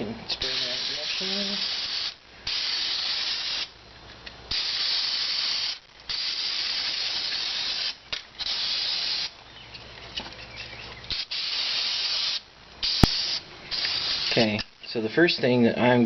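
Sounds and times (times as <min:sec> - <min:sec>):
aerosol spray hissing: 0:00.4 - 0:03.7, 0:04.5 - 0:09.4, 0:11.1 - 0:14.6.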